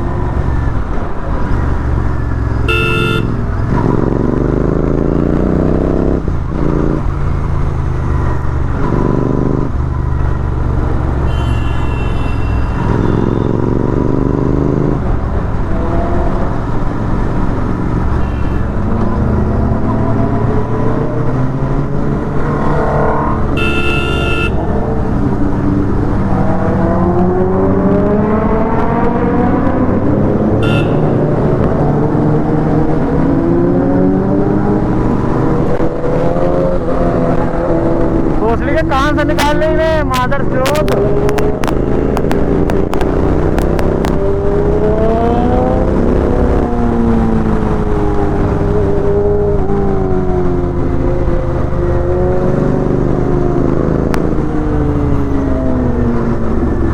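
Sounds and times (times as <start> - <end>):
motorcycle engine accelerating: 0.0 - 11.8, 40.1 - 56.9
vehicle horn: 2.6 - 3.4, 11.2 - 13.5, 18.2 - 18.9, 23.5 - 24.8, 30.6 - 31.4.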